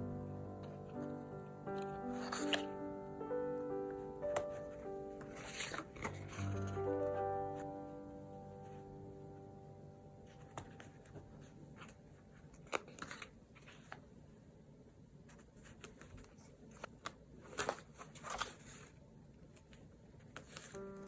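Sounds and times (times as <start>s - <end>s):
paper rustling: 0.6s - 2.8s, 4.3s - 7.7s, 10.3s - 14.1s, 15.3s - 21.0s.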